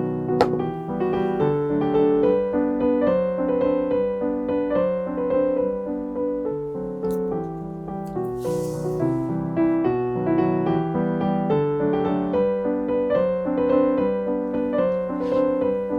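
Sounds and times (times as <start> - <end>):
gentle piano music: 0.0 - 15.9.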